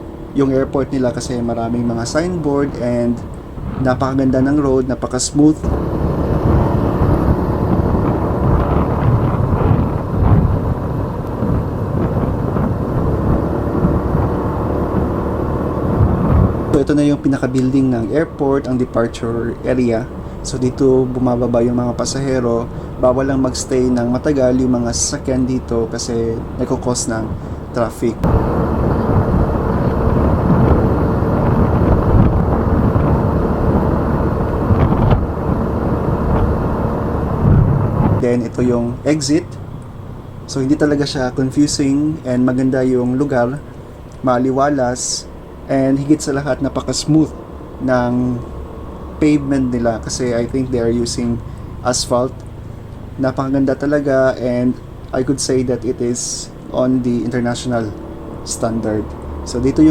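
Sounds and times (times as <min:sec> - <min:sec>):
wind buffeting microphone: 0:00.0 - 0:45.7
motorbike engine: 0:00.0 - 0:59.9.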